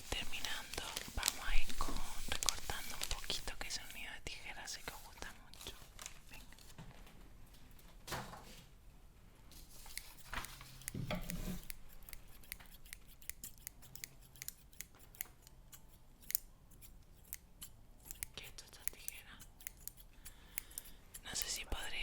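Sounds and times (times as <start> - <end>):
paper rustling: 0.0 - 4.0, 4.8 - 7.2, 9.6 - 11.7
sharp crisp paper clicks: 0.2 - 4.0, 9.7 - 11.0.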